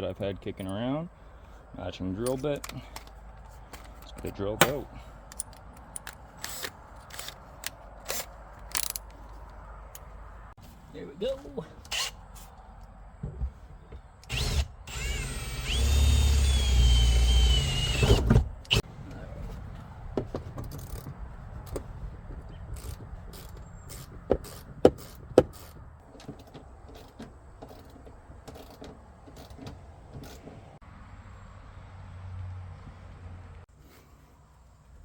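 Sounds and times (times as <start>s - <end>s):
sharp clicks and knocks: 2.3s - 9.4s
electric drill whining: 14.3s - 18.3s.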